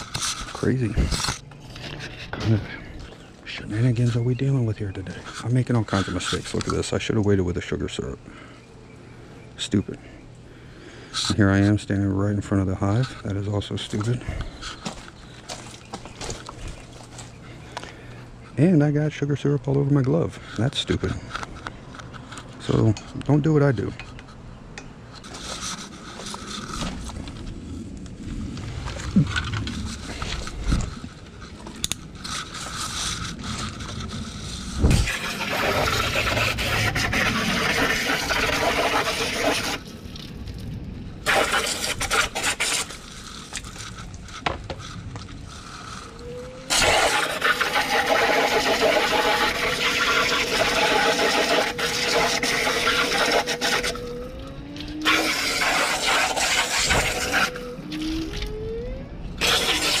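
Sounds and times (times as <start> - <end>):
loud hissing noise: 45.5 - 54.2, 55.0 - 57.9, 59.4 - 60.0
bees buzzing: 46.0 - 58.8.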